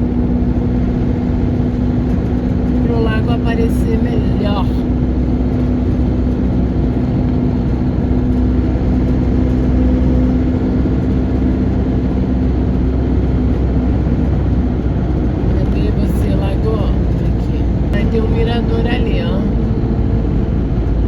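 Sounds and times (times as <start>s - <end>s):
engine and road noise: 0.0s - 21.0s.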